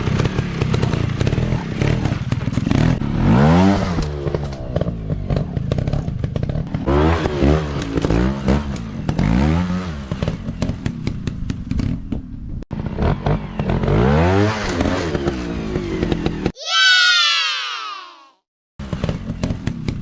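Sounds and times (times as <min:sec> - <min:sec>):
dirt bike engines revving: 0:00.0 - 0:10.7
loud falling tone: 0:16.6 - 0:18.4.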